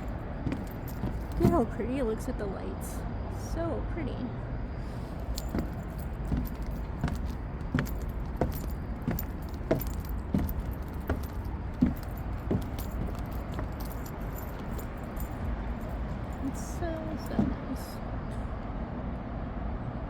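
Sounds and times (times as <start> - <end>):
clicking footsteps: 0.0 - 1.8, 4.8 - 17.9.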